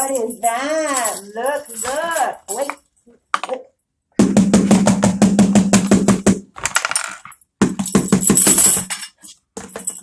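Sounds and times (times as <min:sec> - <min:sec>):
jingling rattle: 0:00.0 - 0:02.8
percussion toy beaten rapidly: 0:04.2 - 0:06.5, 0:07.6 - 0:08.9.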